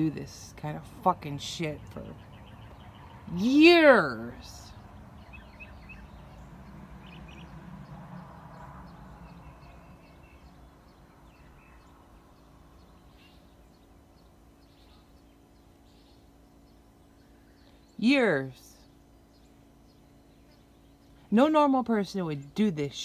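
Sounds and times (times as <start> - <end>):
bird chirps: 4.6 - 18.0.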